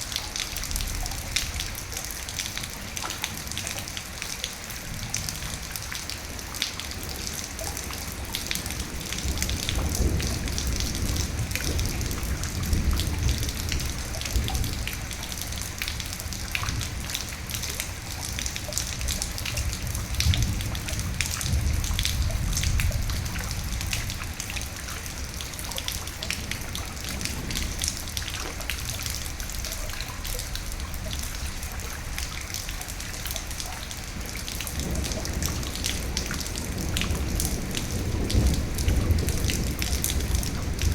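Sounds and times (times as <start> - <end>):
raindrops ticking: 0.0 - 40.9
steady rain: 0.0 - 40.9
low rumble of thunder: 4.8 - 40.9.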